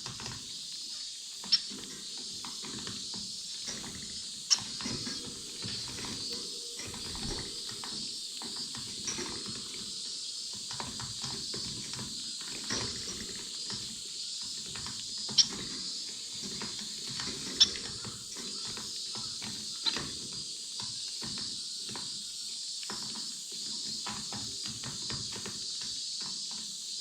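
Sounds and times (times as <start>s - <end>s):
finches pecking seed: 1.4s - 22.1s.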